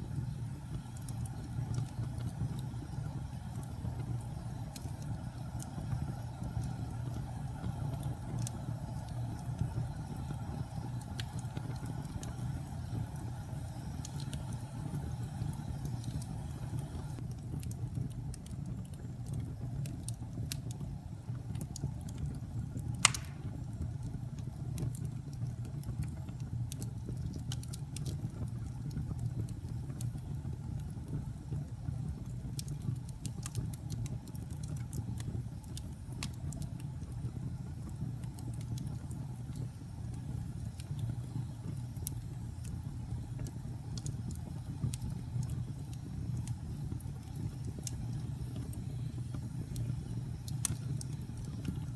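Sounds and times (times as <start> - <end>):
fire crackling and snapping: 0.0 - 51.9
fire flames rumbling: 0.0 - 51.9
loud fire pop: 23.0 - 23.6.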